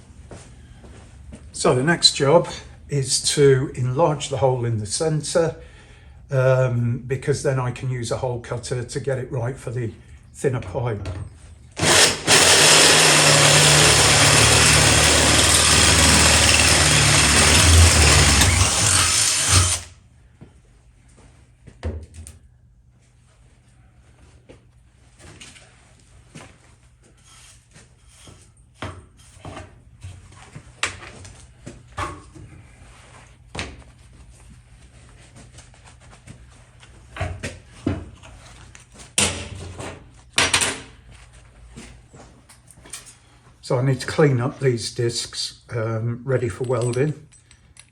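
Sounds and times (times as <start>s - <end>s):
power tool cutting steel: 11.8s - 19.9s
low motor hum: 12.3s - 19.9s.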